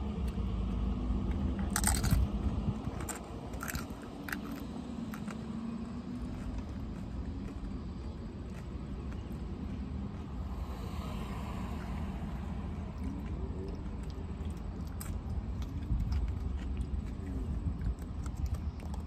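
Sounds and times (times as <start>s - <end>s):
low car cabin rumble: 0.0s - 19.0s
tortilla chips crunching: 1.2s - 10.4s, 12.9s - 19.0s.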